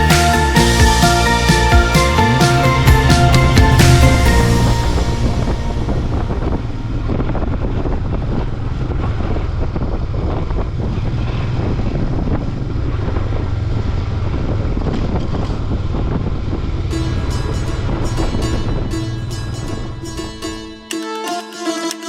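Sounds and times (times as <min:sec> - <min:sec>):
motorcycle engine running: 0:00.0 - 0:20.8.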